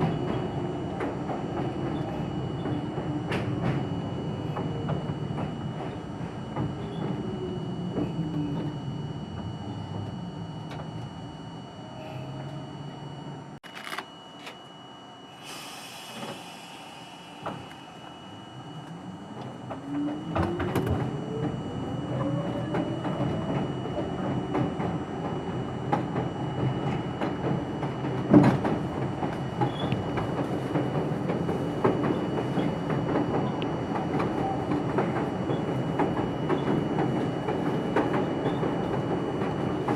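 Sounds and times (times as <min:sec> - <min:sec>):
air hiss: 0:15.4 - 0:18.0
traction motors whining: 0:15.4 - 0:27.2.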